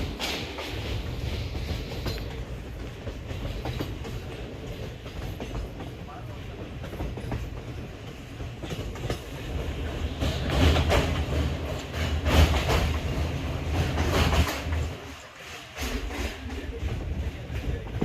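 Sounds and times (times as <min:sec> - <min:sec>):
train rumbling on rails: 0:00.0 - 0:18.0
wheels clattering over rail joints: 0:00.0 - 0:18.0.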